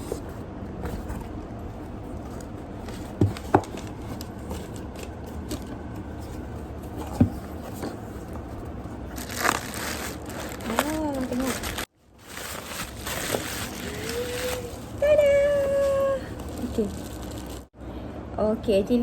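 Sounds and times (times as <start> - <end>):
low background hum: 0.0 - 19.0
packaging rustle: 9.1 - 17.7.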